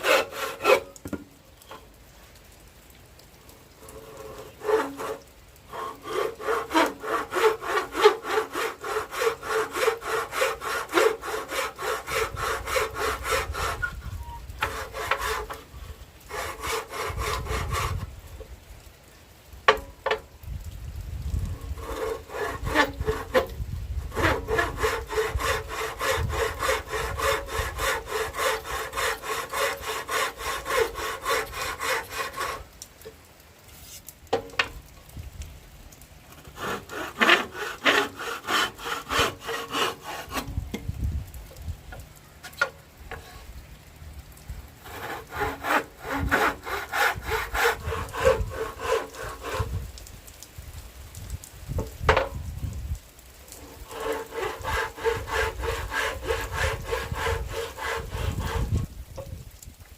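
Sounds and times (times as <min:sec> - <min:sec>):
hand saw cutting wood: 0:00.0 - 0:01.2, 0:03.8 - 0:18.1, 0:21.6 - 0:32.7, 0:36.3 - 0:40.8, 0:42.4 - 0:43.4, 0:44.8 - 0:49.9, 0:53.5 - 0:58.9.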